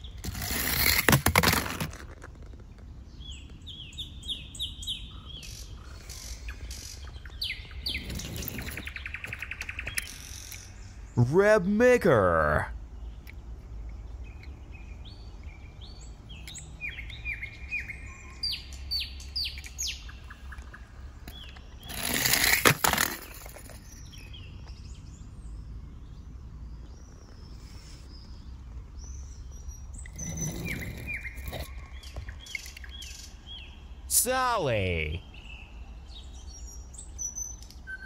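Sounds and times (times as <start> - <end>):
small birds chirping: 2.2 - 22.5, 23.2 - 38.0.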